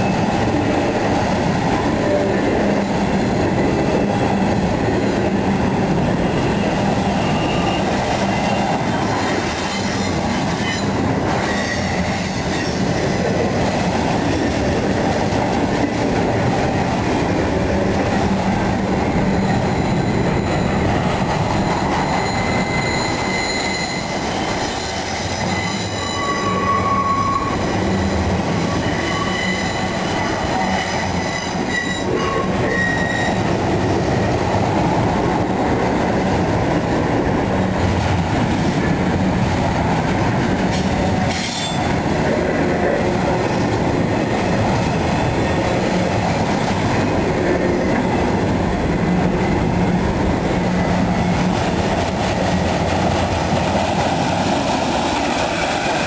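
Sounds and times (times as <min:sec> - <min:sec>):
freight train wheels rumbling: 0:00.0 - 0:56.0
high-pitched wheel squeal: 0:06.2 - 0:08.6, 0:21.6 - 0:33.4.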